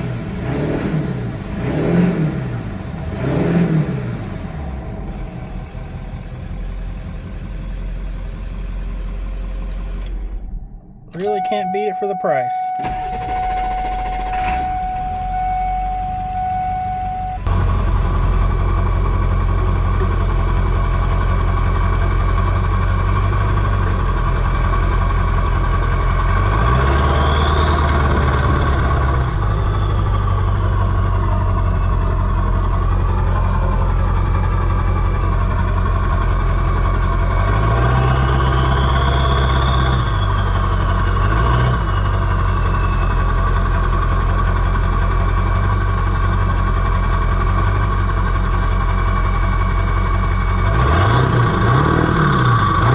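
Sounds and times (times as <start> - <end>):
engine revving: 0.0 - 6.0, 12.6 - 19.4, 22.4 - 43.8, 50.4 - 52.9
diesel engine idling with clatter: 0.0 - 52.9
steady single tone: 11.1 - 18.4
turbo whistle: 11.2 - 17.5.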